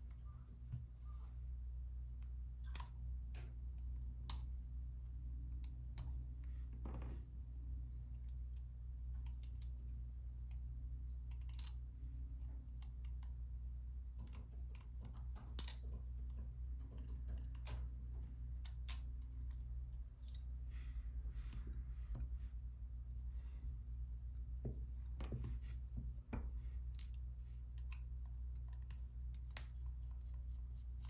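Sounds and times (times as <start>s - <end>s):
steady low hum: 0.0s - 31.0s
light clicks and taps: 14.1s - 20.5s, 24.3s - 31.0s.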